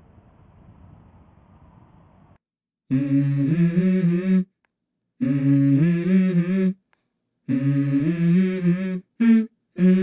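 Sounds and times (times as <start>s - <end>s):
person humming melody: 2.9s - 4.6s, 5.2s - 6.8s, 7.5s - 10.0s.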